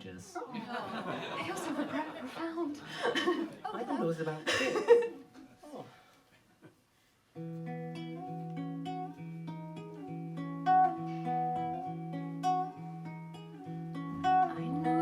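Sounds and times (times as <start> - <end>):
acoustic guitar picking: 7.4 - 15.0.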